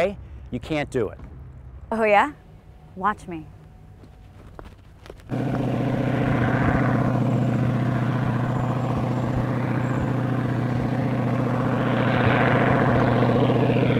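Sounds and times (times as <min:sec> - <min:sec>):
propeller aircraft engine: 0:05.2 - 0:13.9.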